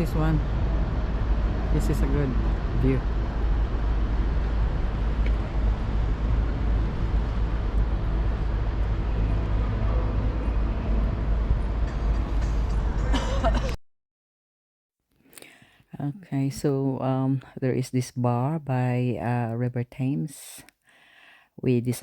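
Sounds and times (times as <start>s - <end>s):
city background noise: 0.0s - 13.8s
heavy low rumble: 0.0s - 13.8s.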